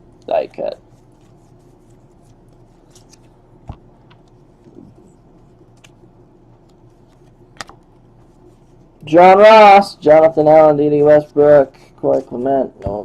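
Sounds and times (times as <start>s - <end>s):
handling cards and wrappers: 0.2s - 8.9s.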